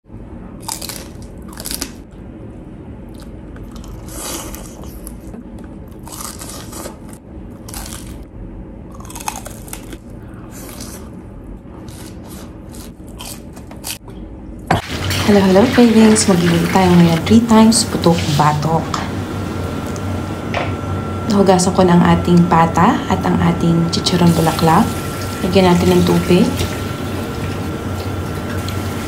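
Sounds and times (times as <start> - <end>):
crunchy chewing: 0.6 - 2.2, 3.1 - 8.3, 8.9 - 14.2.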